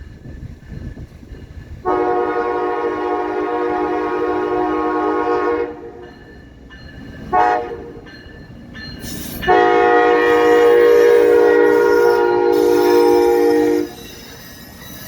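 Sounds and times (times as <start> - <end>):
locomotive air horn blasts: 1.8 - 6.0, 7.3 - 7.9, 9.4 - 14.1.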